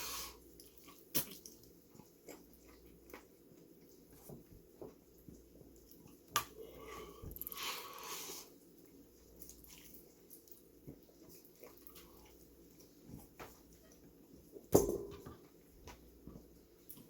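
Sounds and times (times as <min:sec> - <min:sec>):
person chewing: 0:00.0 - 0:04.3, 0:05.3 - 0:13.8
loud hissing breath: 0:06.8 - 0:08.5.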